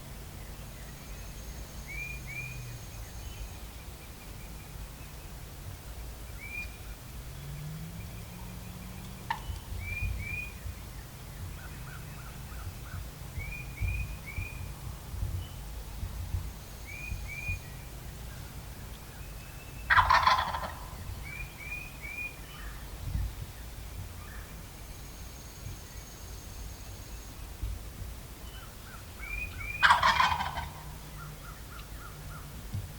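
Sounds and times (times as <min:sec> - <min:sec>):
turkey gobbling: 0:09.3 - 0:09.5, 0:19.9 - 0:21.0, 0:29.4 - 0:31.0.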